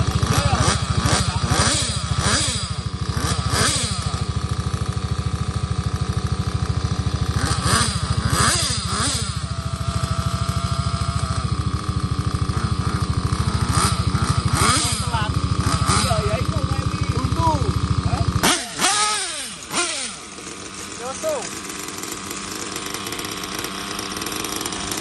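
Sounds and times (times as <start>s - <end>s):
fast low pulsing: 0.0s - 25.0s
rc car engines revving: 0.0s - 25.0s.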